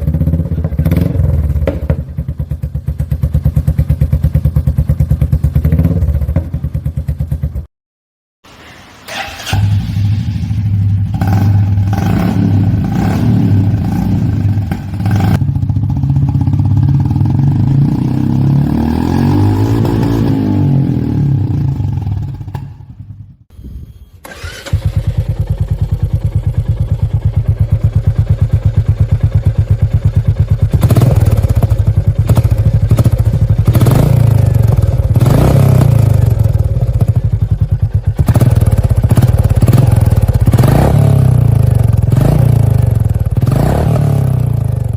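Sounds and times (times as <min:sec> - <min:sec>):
motorcycle engine revving and idling: 0:00.0 - 0:07.7, 0:09.1 - 0:23.5, 0:24.3 - 0:44.9.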